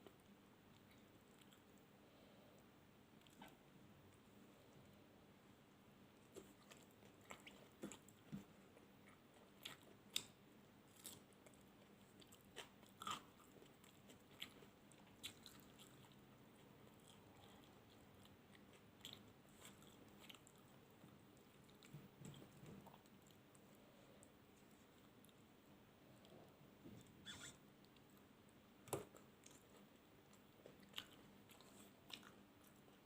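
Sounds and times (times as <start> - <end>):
chewing and biting food: 6.3 - 25.4, 28.9 - 33.0.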